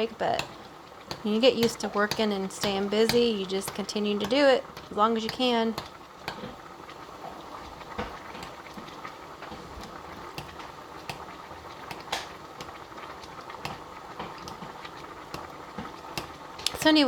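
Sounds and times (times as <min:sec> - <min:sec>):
water boiling in a pan: 0:00.0 - 0:17.0.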